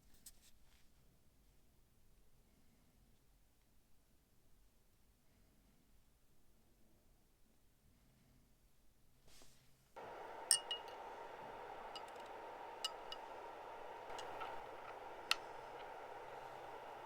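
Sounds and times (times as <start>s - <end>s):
steady hiss: 9.3s - 17.0s.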